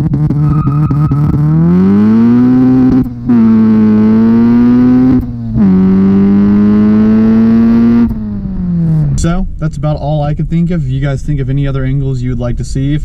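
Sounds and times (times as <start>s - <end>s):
car exhaust accelerating hard: 0.0s - 9.7s.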